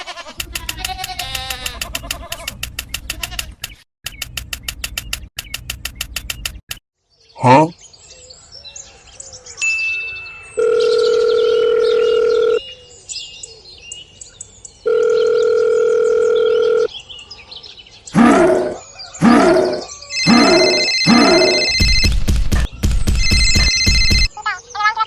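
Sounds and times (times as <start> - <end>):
birds chirping: 0.4 - 25.0
long electronic tones: 20.1 - 22.1.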